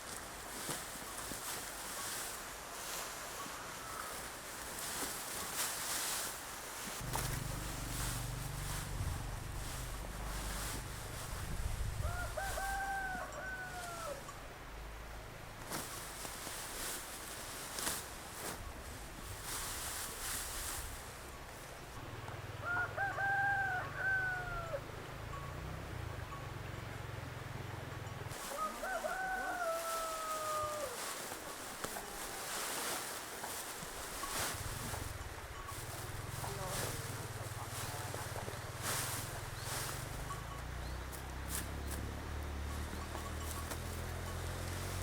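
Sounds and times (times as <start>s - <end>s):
rustling swishes: 0.0s - 14.2s, 15.6s - 21.8s, 28.3s - 42.1s
low rumble: 7.0s - 12.1s
low steady hum: 7.0s - 17.4s
rooster crowing: 12.0s - 14.3s, 22.6s - 24.9s, 28.4s - 31.2s.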